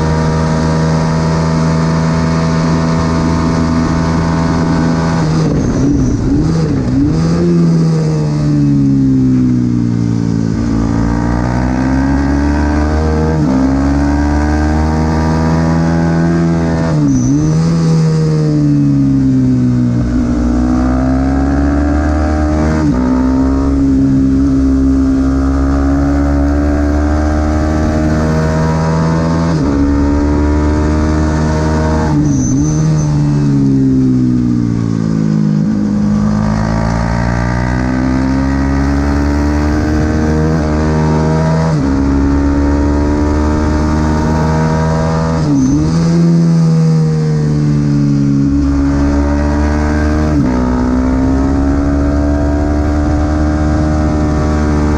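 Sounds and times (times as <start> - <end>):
wind noise: 0.0 - 46.6
racing motorcycle engine shifting gears: 0.0 - 54.9.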